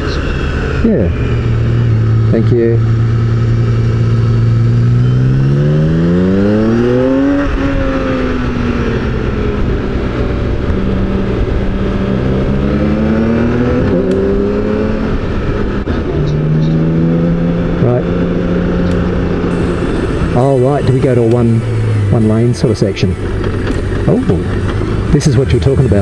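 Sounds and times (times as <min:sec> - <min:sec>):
motorcycle engine accelerating: 0:00.0 - 0:26.0
wind rushing: 0:19.3 - 0:26.0.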